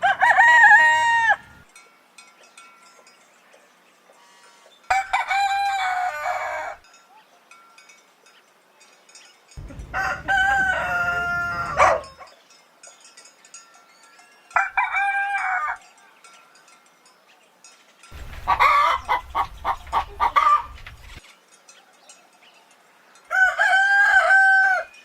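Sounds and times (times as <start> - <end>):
rooster crowing: 0.0 - 1.7, 4.9 - 6.8, 9.6 - 12.3, 14.6 - 15.8, 18.2 - 21.2, 23.3 - 25.0
quick choppy calls: 18.1 - 21.2.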